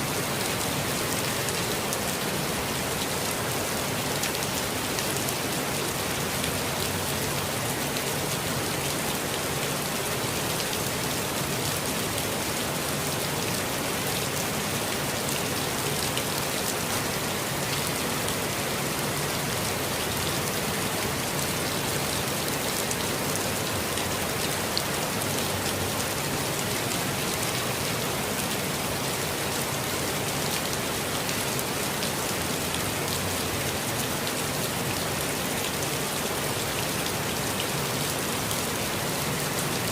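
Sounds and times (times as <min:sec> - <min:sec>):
rain pattering on leaves: 0:00.0 - 0:39.9.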